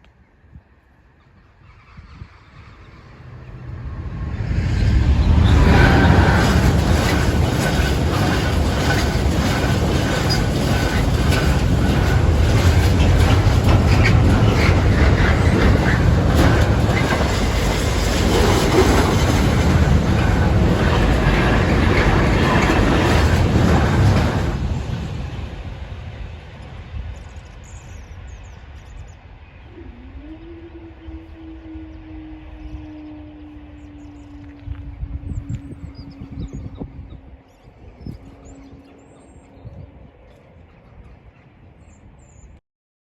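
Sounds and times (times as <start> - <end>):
wheels clattering over rail joints: 5.3 - 26.0.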